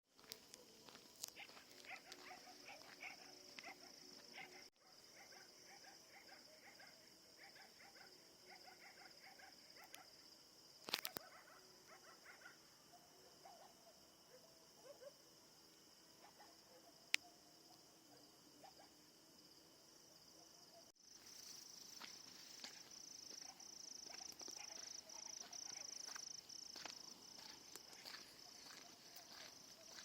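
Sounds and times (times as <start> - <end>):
distant dogs barking: 0.2 - 10.3, 10.9 - 15.3, 16.1 - 19.1, 20.3 - 20.9, 22.5 - 30.0
insect chirring: 8.0 - 12.6, 20.8 - 30.0.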